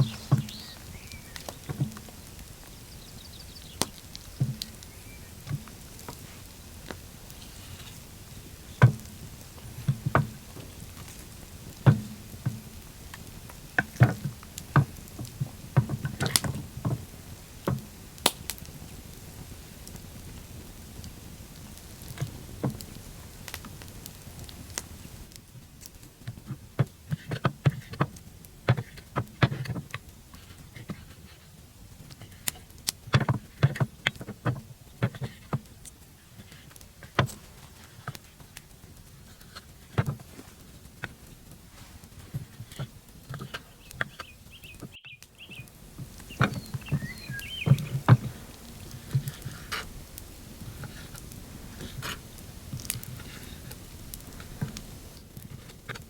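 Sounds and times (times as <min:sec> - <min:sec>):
irregular knocks and taps: 0:00.0 - 0:02.2, 0:03.8 - 0:06.2, 0:08.8 - 0:09.1, 0:11.9 - 0:12.6.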